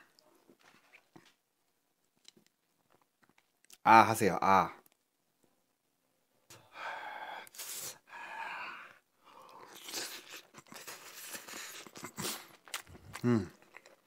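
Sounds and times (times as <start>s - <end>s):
noodles being slurped and chewed: 9.4s - 14.0s.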